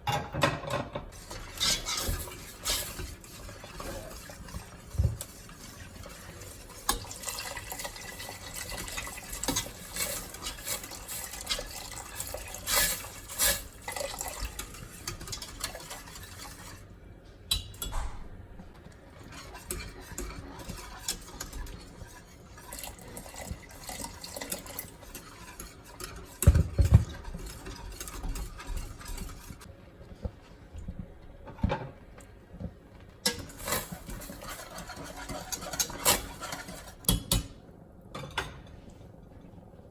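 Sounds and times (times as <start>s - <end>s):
utensils clinking on cookware: 0.1s - 5.2s, 33.2s - 37.6s
liquid pouring and splashing: 1.2s - 16.8s, 20.4s - 29.5s.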